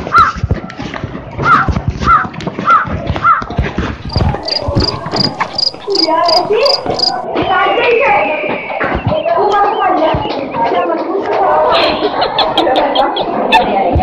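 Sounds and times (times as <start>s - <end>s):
bird calling: 4.0s - 7.2s.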